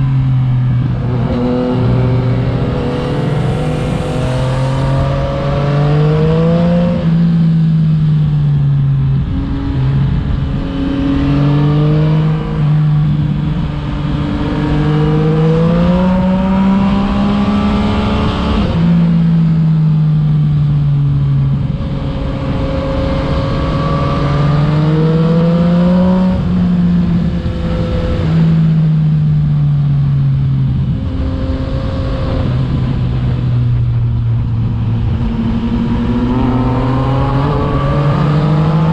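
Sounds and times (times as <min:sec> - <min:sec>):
wind rush: 0:00.0 - 0:07.6, 0:30.5 - 0:38.9
motorcycle engine accelerating: 0:00.0 - 0:38.9.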